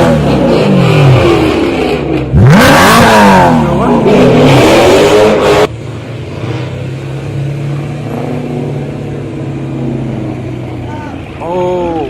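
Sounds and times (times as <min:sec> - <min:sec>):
car engine revving hard: 0:00.0 - 0:05.7
car engines running steadily: 0:00.0 - 0:12.0.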